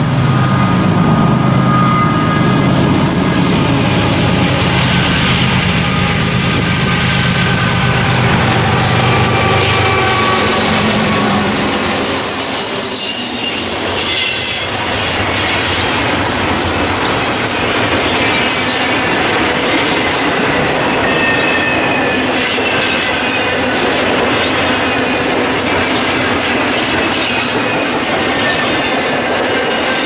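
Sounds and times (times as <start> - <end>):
diesel locomotive engine drone: 0.0 - 30.0
freight cars rumbling on rails: 0.0 - 30.0
high-pitched wheel squeal: 0.0 - 30.0.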